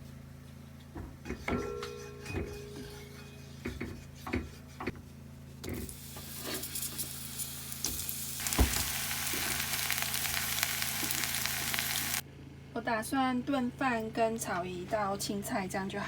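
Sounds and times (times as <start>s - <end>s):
food sizzling in a pan: 5.8s - 12.2s.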